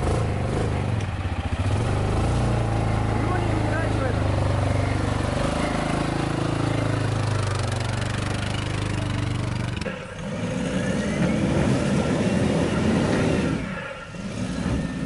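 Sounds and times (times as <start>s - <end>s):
atv engine idling: 0.0s - 11.7s
vehicle driving on stony track: 0.0s - 15.0s.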